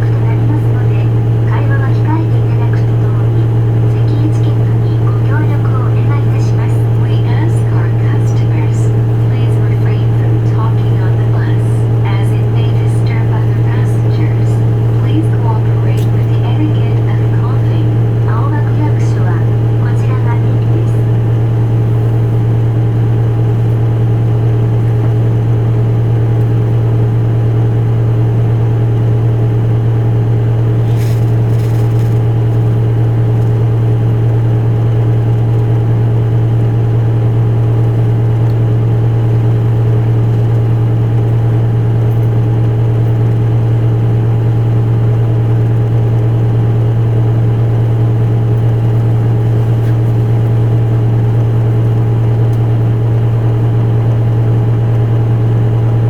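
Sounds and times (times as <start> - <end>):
bus diesel engine idling: 0.0 - 56.0.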